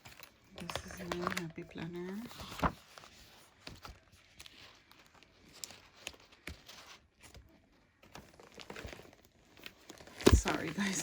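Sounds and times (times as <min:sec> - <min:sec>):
paper planner taps and rustles: 0:00.6 - 0:02.8, 0:10.1 - 0:11.0.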